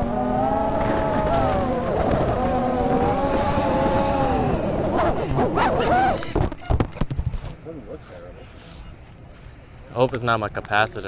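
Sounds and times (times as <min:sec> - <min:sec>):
quadcopter motors whining: 0:00.0 - 0:06.4.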